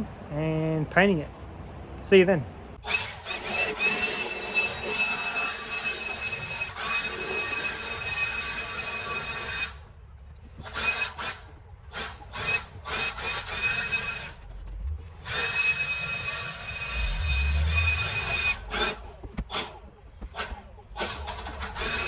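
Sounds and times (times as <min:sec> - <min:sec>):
power saw cutting wood: 0:02.8 - 0:09.8, 0:15.2 - 0:22.0.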